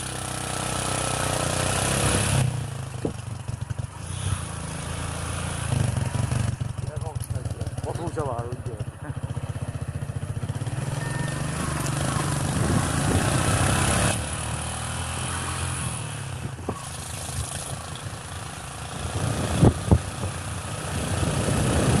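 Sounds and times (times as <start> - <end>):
motorcycle engine running: 0.0 - 22.0
wind noise on microphone: 11.3 - 14.2, 18.9 - 22.0.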